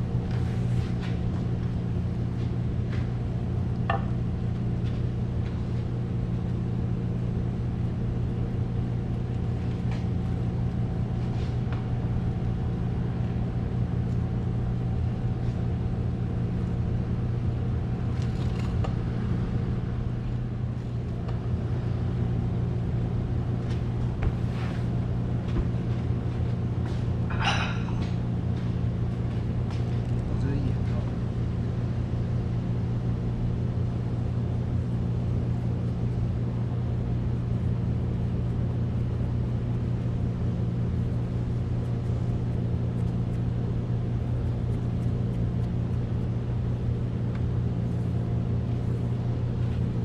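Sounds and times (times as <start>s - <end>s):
low mechanical hum of machinery: 0.0s - 50.0s.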